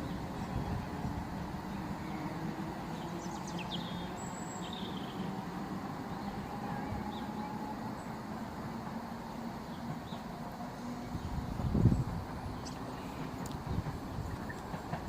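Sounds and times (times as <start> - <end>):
small birds chirping: 11.1 - 14.8.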